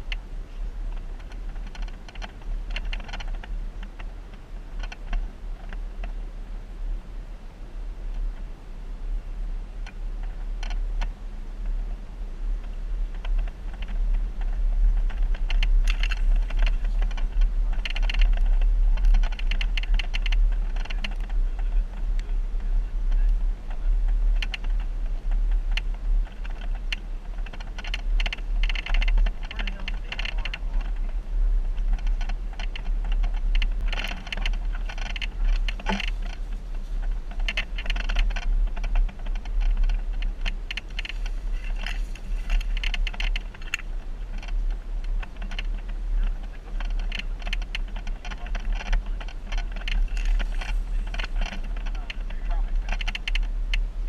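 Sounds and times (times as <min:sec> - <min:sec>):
vehicle engine low rumble: 0:00.0 - 0:54.0
rapid clicking and rattling: 0:00.9 - 0:06.2, 0:12.6 - 0:53.9.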